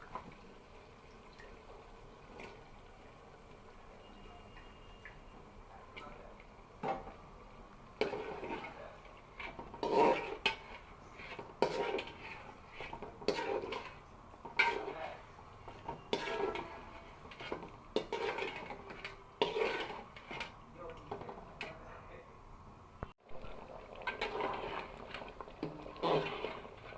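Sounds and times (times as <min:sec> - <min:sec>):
metal utensil scraping cookware: 0:08.0 - 0:21.8, 0:23.4 - 0:26.9.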